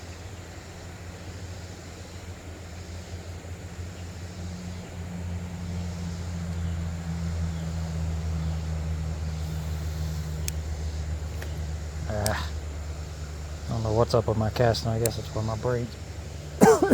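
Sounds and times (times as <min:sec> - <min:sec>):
low engine drone: 0:02.1 - 0:16.9.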